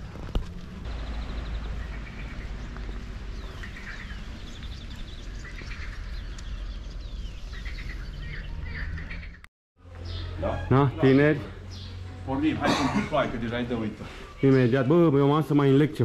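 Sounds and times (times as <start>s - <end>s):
songbirds singing: 0.8s - 12.8s.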